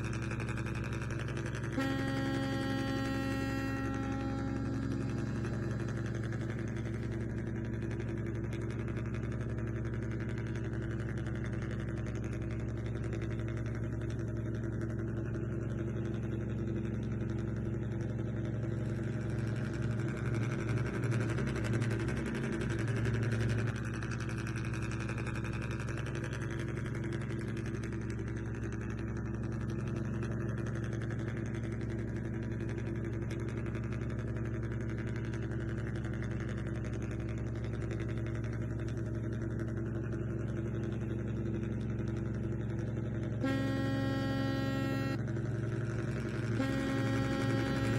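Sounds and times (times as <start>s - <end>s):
small motor humming: 0.0s - 7.2s, 43.4s - 45.2s, 46.5s - 47.9s.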